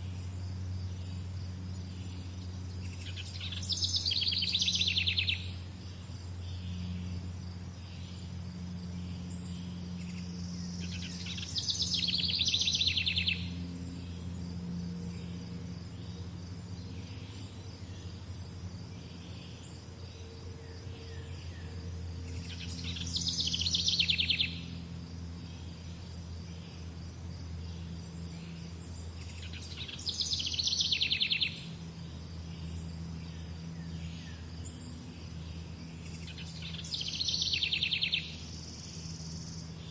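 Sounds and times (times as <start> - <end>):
low background hum: 0.0 - 39.9
songbird trilling: 2.7 - 5.6, 9.1 - 13.6, 20.9 - 24.8, 29.2 - 31.8, 36.0 - 39.7.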